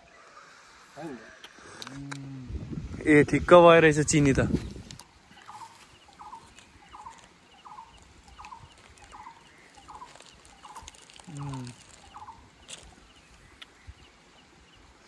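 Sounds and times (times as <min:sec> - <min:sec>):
low voice-like sound: 0:01.0 - 0:03.0, 0:11.3 - 0:11.8
bird rattly call: 0:05.4 - 0:13.6.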